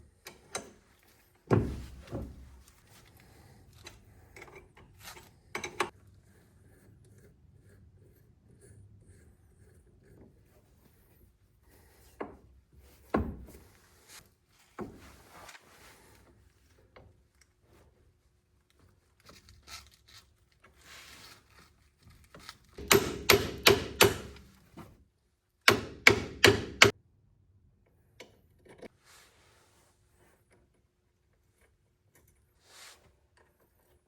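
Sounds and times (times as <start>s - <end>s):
parts clunking and rubbing: 0.2s - 6.0s, 19.2s - 25.0s
hammer tapping: 22.8s - 24.5s, 25.7s - 26.9s.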